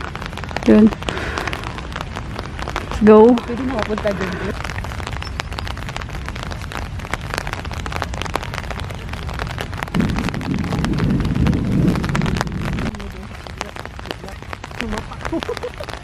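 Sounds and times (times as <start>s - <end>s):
rain falling: 0.0s - 16.0s
raindrops striking near microphone: 0.0s - 16.0s.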